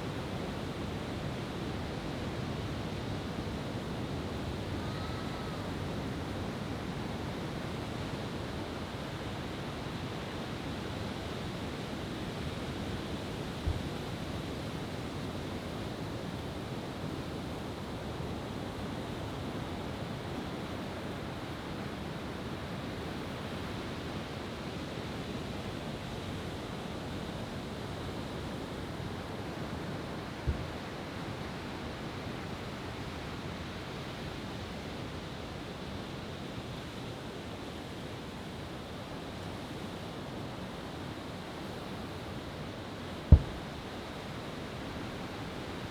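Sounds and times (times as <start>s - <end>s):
brief low thump: 43.3s - 43.6s.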